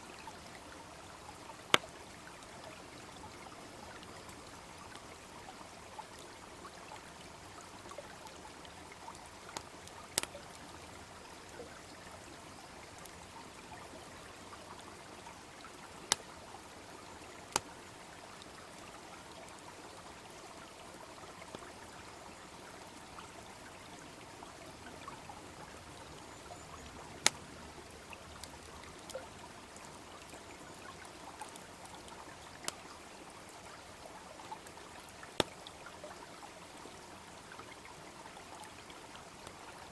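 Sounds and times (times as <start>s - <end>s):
brook babbling: 0.0s - 39.9s
wood fire crackling and popping: 9.6s - 10.4s, 27.2s - 27.4s.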